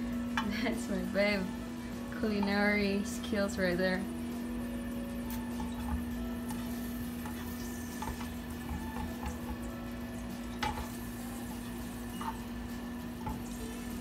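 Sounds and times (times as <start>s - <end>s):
steady low hum: 0.0s - 14.0s
garlic sizzling in oil: 4.8s - 14.0s.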